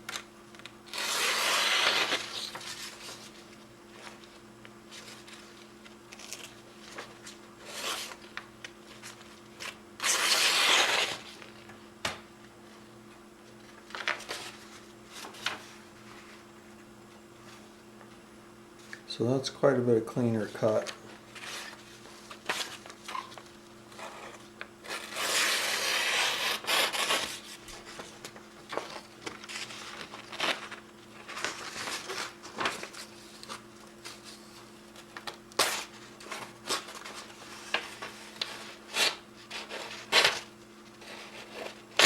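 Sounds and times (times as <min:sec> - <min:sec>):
faint steady hum: 0:00.0 - 0:42.0
knife slicing paper: 0:00.9 - 0:03.1, 0:10.0 - 0:11.3, 0:24.8 - 0:27.4
paper rubbing and crinkling: 0:13.6 - 0:16.4, 0:20.4 - 0:42.0.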